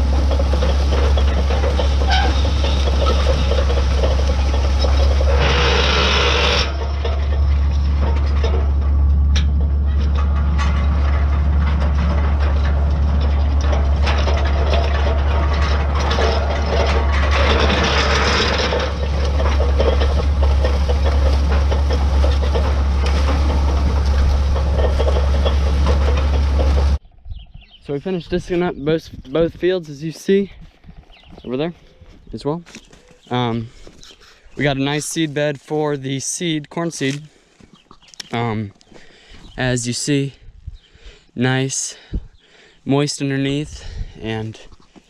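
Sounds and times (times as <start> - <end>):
tractor diesel engine running: 0.0 - 27.4.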